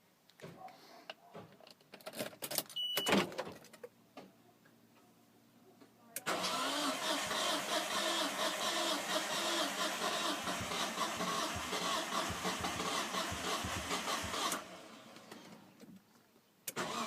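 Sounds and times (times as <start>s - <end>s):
starter motor cranking engine: 6.3s - 15.6s, 16.7s - 17.0s.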